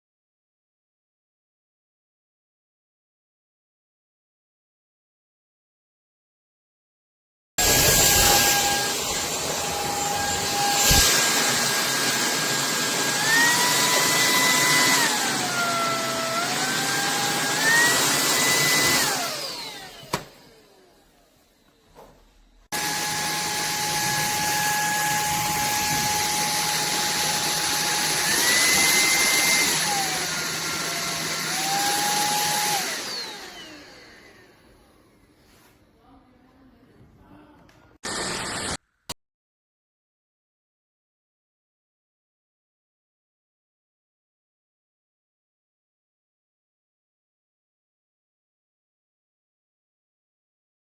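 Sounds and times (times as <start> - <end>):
stick vacuum motor whine: 7.6 - 21.8, 22.7 - 35.0, 38.0 - 38.8.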